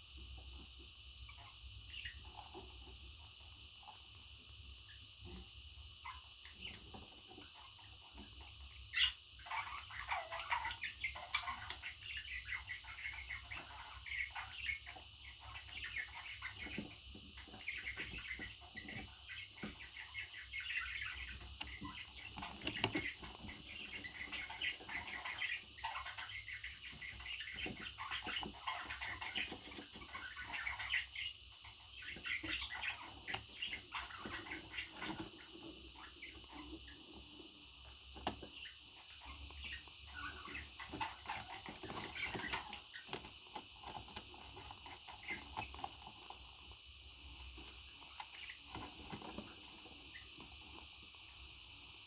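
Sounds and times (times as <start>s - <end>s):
parrot chirping and squawking: 8.9s - 16.8s, 17.4s - 37.0s, 38.6s - 43.1s.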